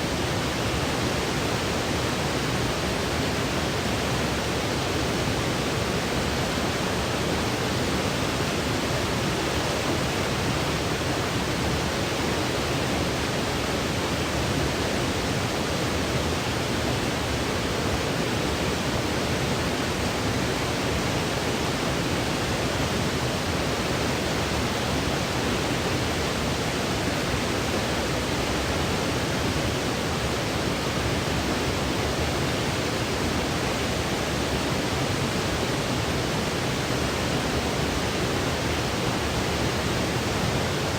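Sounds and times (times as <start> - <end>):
steady white noise hiss: 0.0 - 40.9.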